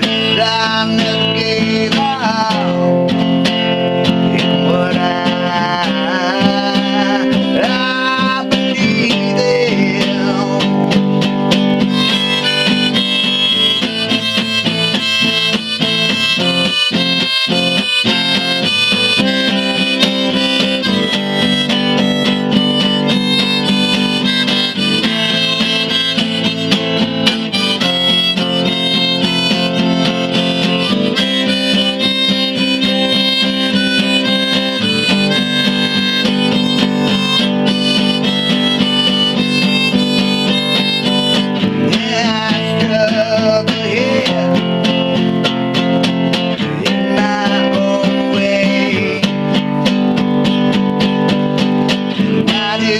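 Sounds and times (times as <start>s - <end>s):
acoustic guitar chords: 0.0s - 52.9s
harmonica: 0.0s - 52.9s.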